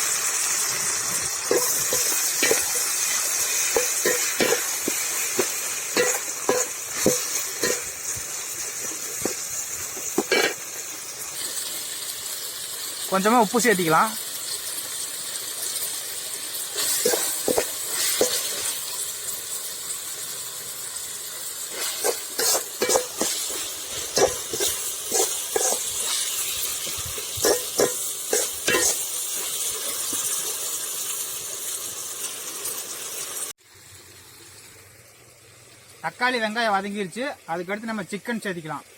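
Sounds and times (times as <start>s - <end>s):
vegetables sizzling in hot oil: 0.0s - 38.9s
spatula scraping and knocking pan: 1.1s - 10.7s, 16.8s - 18.8s, 21.7s - 30.4s.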